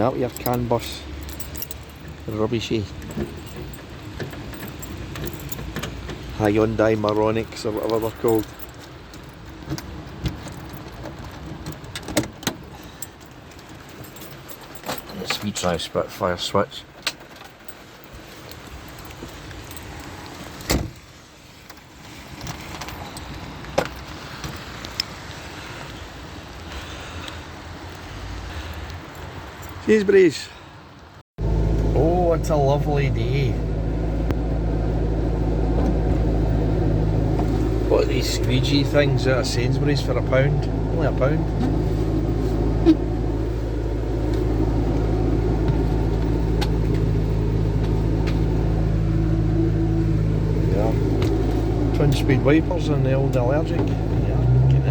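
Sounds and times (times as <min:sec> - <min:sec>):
car engine droning: 0:00.0 - 0:14.6, 0:31.4 - 0:54.9
road rumble: 0:00.0 - 0:54.9
steady low rumble: 0:31.4 - 0:54.9.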